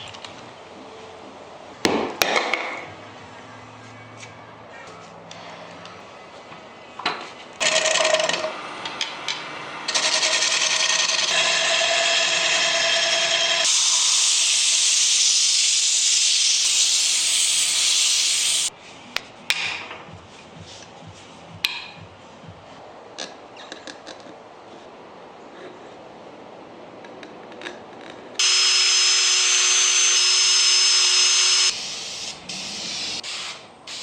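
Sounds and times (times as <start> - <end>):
power sander on wood: 9.7 - 18.7, 28.4 - 33.2.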